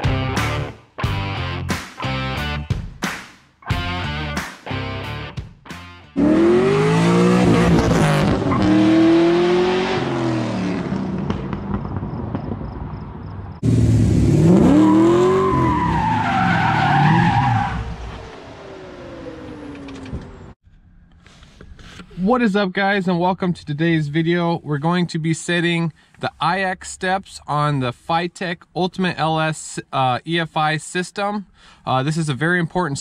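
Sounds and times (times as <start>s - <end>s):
tires squealing: 6.2s - 10.5s, 14.3s - 20.1s
car engine revving: 6.2s - 20.6s.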